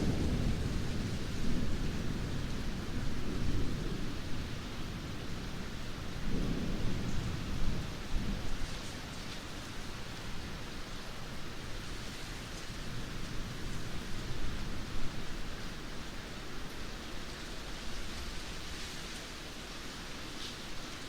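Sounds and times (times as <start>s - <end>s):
low roll of thunder: 0.0s - 10.7s
heavy rain falling: 0.0s - 21.0s.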